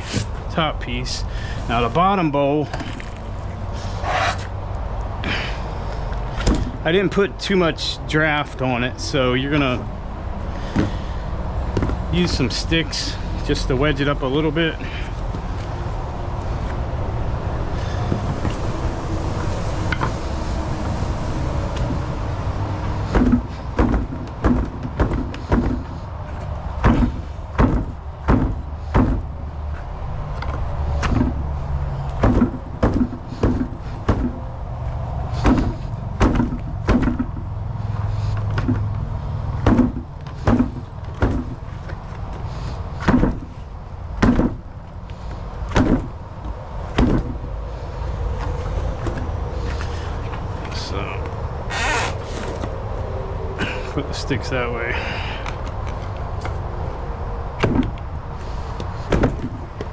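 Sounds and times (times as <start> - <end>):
sticks knocking on concrete: 10.6 - 11.1.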